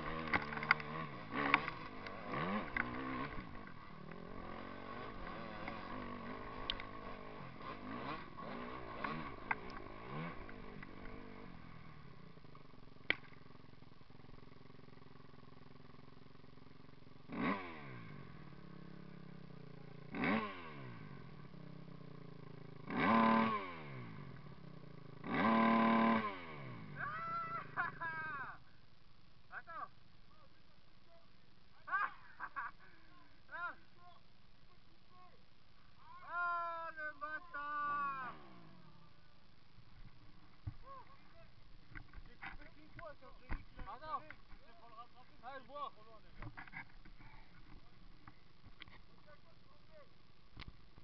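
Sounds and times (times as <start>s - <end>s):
motocross bikes passing by: 0.0s - 30.6s, 31.2s - 51.0s
clicks: 0.1s - 4.2s, 6.6s - 7.0s.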